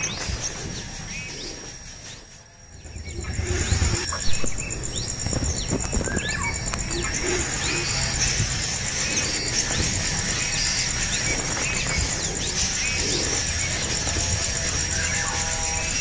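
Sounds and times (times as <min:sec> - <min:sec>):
birds chirping: 0:00.0 - 0:16.0
pulsing insect trill: 0:00.0 - 0:16.0.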